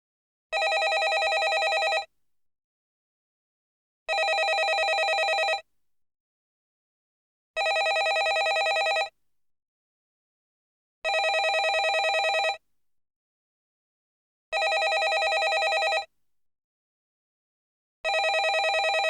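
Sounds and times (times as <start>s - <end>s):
telephone bell ringing: 0.6s - 2.1s, 4.1s - 5.6s, 7.6s - 9.1s, 11.1s - 12.6s, 14.6s - 16.1s, 18.1s - 19.0s.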